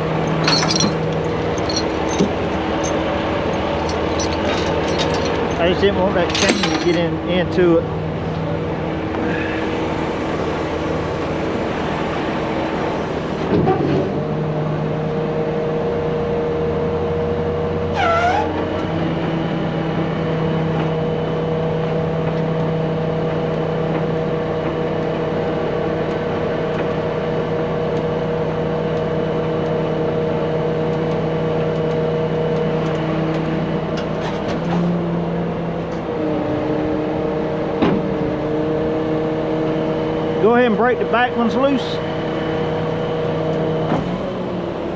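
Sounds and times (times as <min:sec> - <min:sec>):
truck engine running: 0:00.0 - 0:13.5
short descending squeal: 0:17.9 - 0:18.6.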